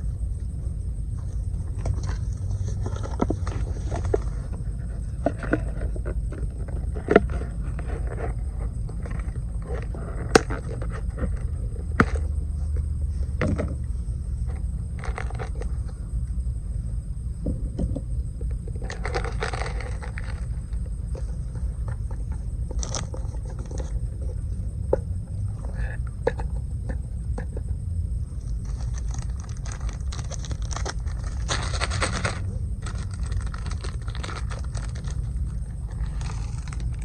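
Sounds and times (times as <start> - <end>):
low rumble: 0.0 - 37.0
scraping rustle: 28.4 - 37.0.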